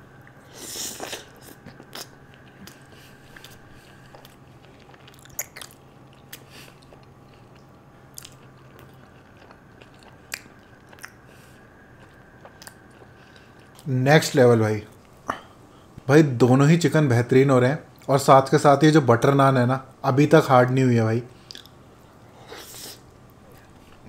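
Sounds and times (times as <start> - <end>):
low steady hum: 0.0 - 24.0
biting and chewing food: 1.0 - 13.9.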